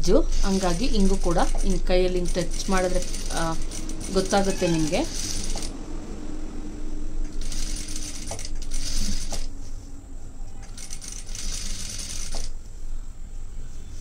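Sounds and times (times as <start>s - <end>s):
steady low hum: 0.0s - 14.0s
sewing machine stitching: 0.3s - 5.7s, 7.4s - 9.5s, 10.7s - 12.5s.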